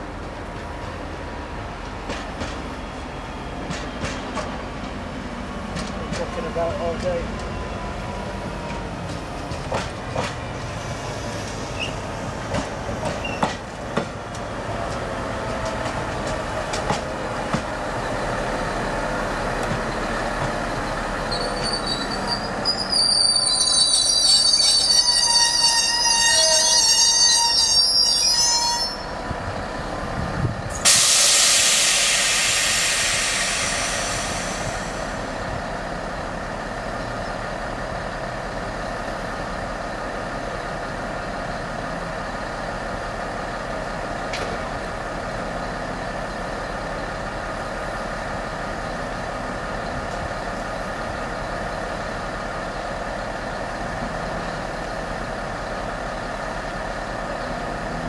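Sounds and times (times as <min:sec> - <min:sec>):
train humming: 0:00.0 - 0:58.0
train wheels squealing on rails: 0:05.7 - 0:13.7, 0:19.7 - 0:29.3, 0:30.7 - 0:36.4
loud hiss of air: 0:30.7 - 0:35.5.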